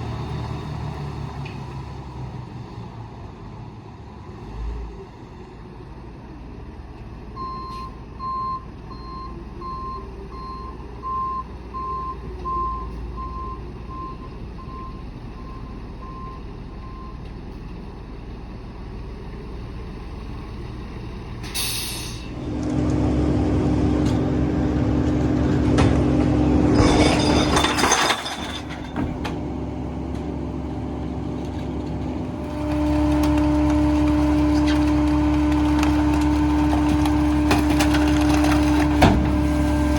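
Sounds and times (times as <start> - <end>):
diesel engine drone: 0.0 - 39.9
air brake hiss: 21.4 - 22.3.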